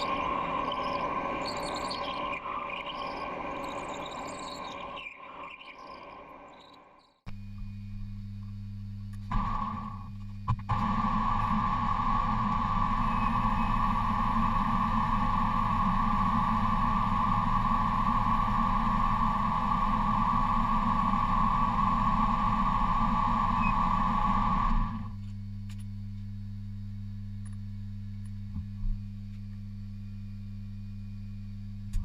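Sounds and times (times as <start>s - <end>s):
small motor running: 10.7s - 25.2s.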